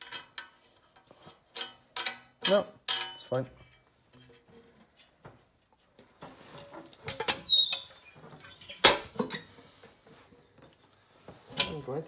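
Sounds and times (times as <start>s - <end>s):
short high squeaks: 7.4s - 8.9s.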